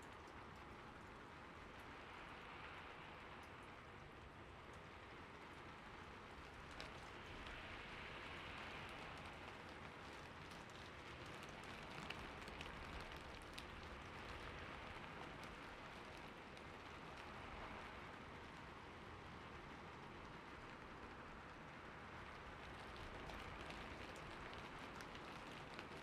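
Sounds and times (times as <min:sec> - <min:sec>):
trickling water: 0:22.0 - 0:26.0.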